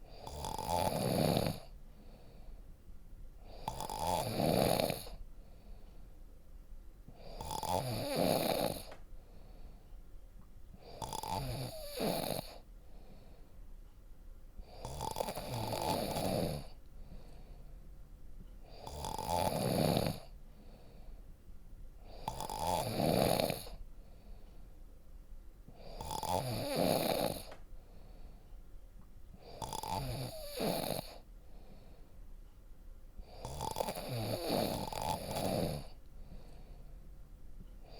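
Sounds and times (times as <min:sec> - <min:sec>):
person snoring loudly: 0:00.1 - 0:01.7, 0:03.5 - 0:05.2, 0:07.2 - 0:08.9, 0:10.8 - 0:12.6, 0:14.7 - 0:16.8, 0:18.7 - 0:20.3, 0:22.1 - 0:23.8, 0:25.8 - 0:27.5, 0:29.4 - 0:31.2, 0:33.3 - 0:36.0.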